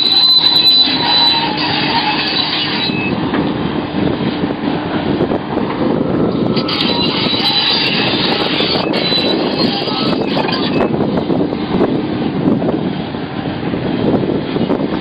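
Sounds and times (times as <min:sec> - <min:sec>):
thin high squeal: 0:00.0 - 0:03.2, 0:06.5 - 0:11.0
excavator engine and hydraulics: 0:00.0 - 0:15.0.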